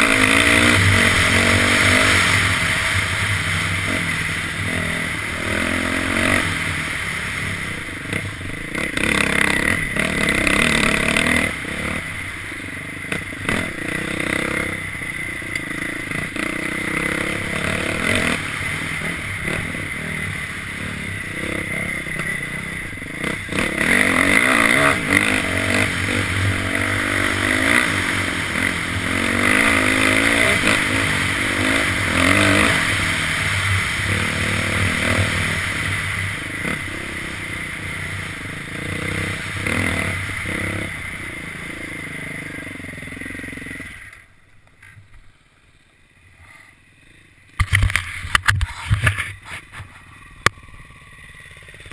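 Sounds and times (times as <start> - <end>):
dirt bike engine revving: 0.0 - 44.2.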